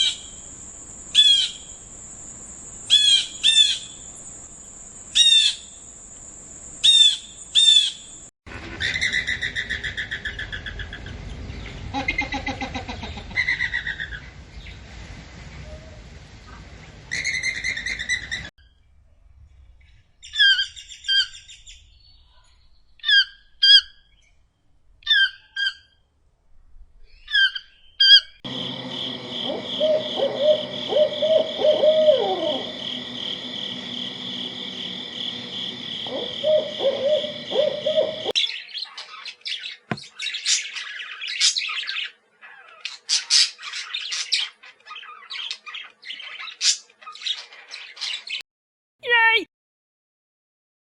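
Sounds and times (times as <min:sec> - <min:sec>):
harsh bird calls: 0:01.1 - 0:01.8, 0:02.8 - 0:04.2, 0:05.2 - 0:05.8, 0:06.8 - 0:14.8, 0:27.1 - 0:48.4
warbling bird notes: 0:29.3 - 0:38.4.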